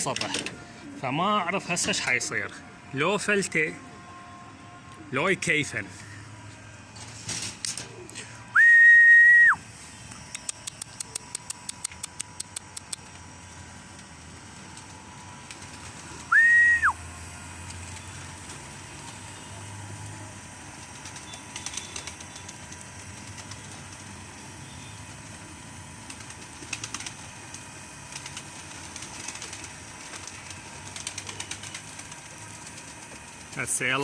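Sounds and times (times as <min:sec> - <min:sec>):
high loud whistles: 0:08.5 - 0:09.8, 0:16.2 - 0:17.1.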